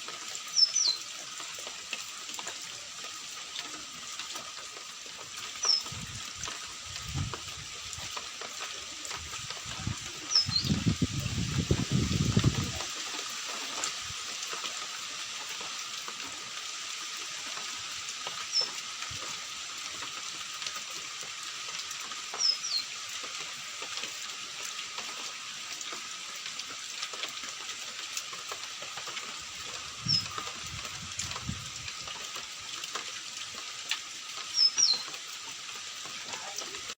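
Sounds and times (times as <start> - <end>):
falling rain: 0.0 - 37.0
bird chirping: 0.6 - 1.0, 10.3 - 10.8, 34.6 - 35.1.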